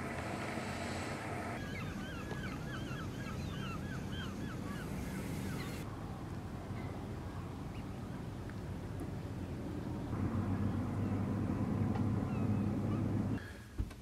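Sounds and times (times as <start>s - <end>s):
steady low rumble: 5.8s - 13.4s.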